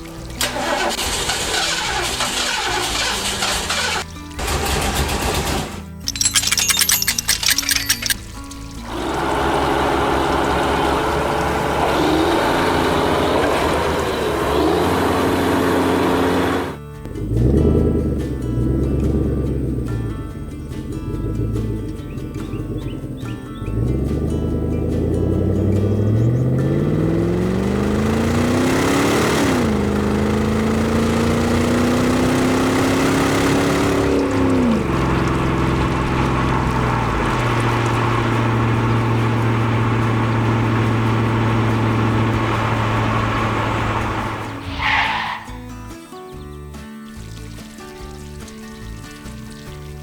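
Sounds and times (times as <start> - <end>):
heavy vehicle engine revving: 8.8 - 45.8.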